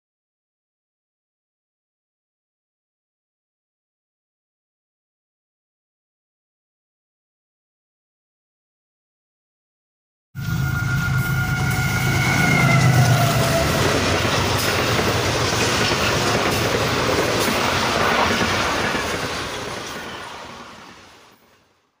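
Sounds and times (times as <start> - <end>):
steady high tones: 10.4 - 15.7
diesel locomotive engine: 10.4 - 21.5.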